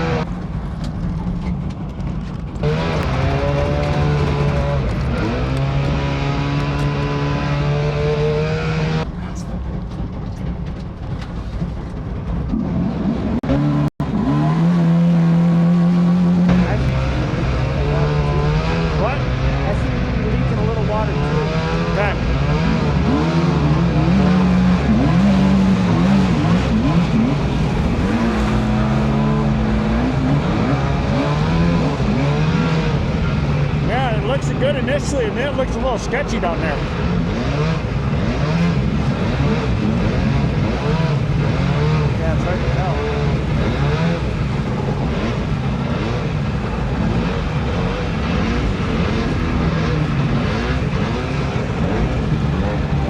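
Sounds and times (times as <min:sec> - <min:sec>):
wind: 0:00.0 - 0:53.0
water rushing: 0:13.6 - 0:53.0
small boat motor running: 0:22.8 - 0:32.2.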